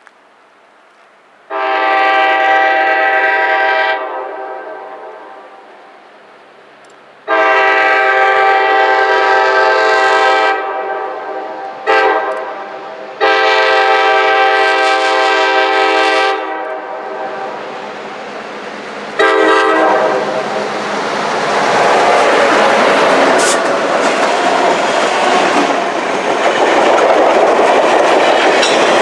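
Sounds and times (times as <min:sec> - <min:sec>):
rumble of moving train: 0:00.0 - 0:29.0
train horn blasts: 0:01.5 - 0:05.7, 0:07.2 - 0:17.7, 0:19.2 - 0:20.7.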